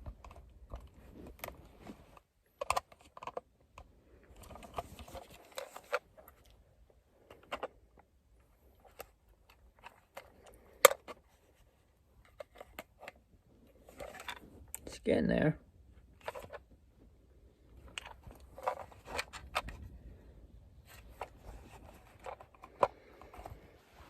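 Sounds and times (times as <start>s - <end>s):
plastic clicks and creaks: 0.0s - 6.6s, 7.2s - 8.1s, 8.7s - 11.5s, 20.8s - 23.7s
plastic scraping: 0.0s - 14.8s, 16.1s - 16.8s, 17.7s - 24.0s.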